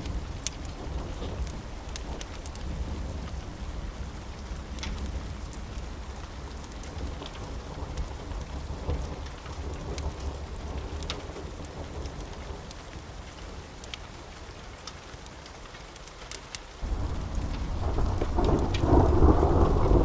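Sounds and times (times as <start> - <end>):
low rumble of thunder: 0.0 - 13.6, 16.8 - 20.0
steady rain: 0.0 - 20.0
sharp crackles: 9.0 - 20.0.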